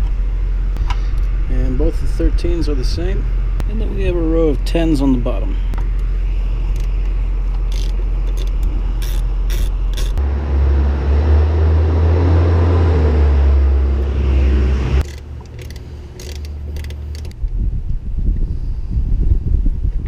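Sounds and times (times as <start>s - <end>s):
steady low hum: 0.0s - 19.9s
low rumble: 0.0s - 20.0s
wrench ratchet clicking: 7.7s - 10.2s, 15.0s - 17.4s.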